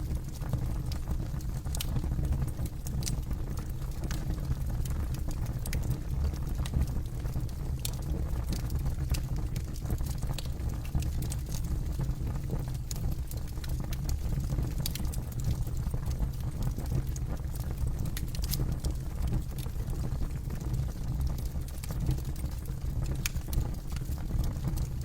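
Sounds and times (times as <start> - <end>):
low rumble of flame: 0.0 - 25.0
campfire crackling: 5.2 - 12.0, 12.8 - 24.8.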